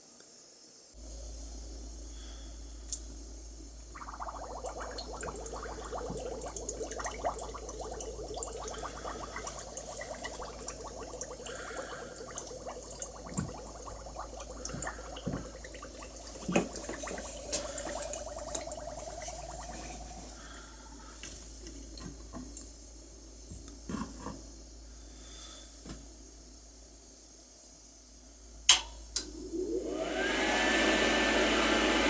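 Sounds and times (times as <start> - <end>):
electrolysis bath fizzing and bubbling: 3.5 - 22.7, 29.2 - 32.0.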